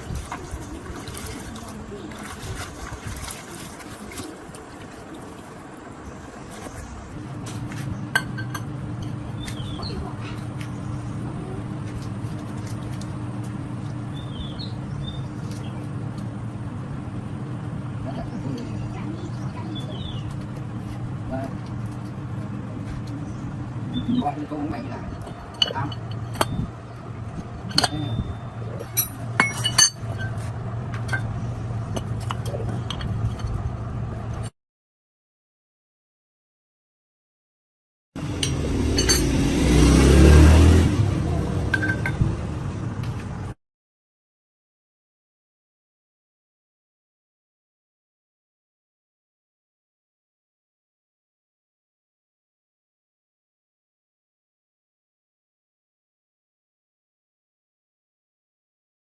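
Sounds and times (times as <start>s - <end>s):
low motor hum: 0.0s - 34.5s, 38.2s - 43.6s
birds chirping: 9.1s - 11.8s, 13.7s - 16.1s, 18.0s - 20.8s, 21.4s - 29.1s.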